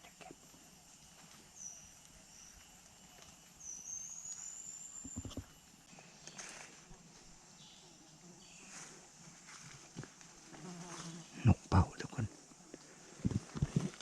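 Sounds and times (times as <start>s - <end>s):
faint high bird chirps: 1.5s - 5.5s.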